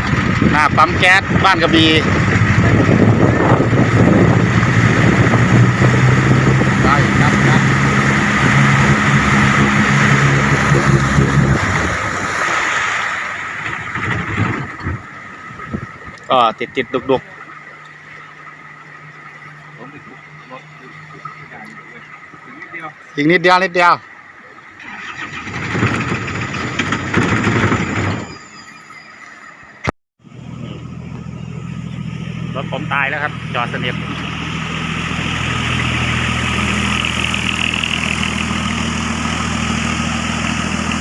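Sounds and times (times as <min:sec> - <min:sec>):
vehicle engine running: 0:00.0 - 0:12.6, 0:13.4 - 0:28.1, 0:30.2 - 0:41.0
rushing water: 0:00.0 - 0:27.4
car starter motor cranking: 0:24.8 - 0:28.0.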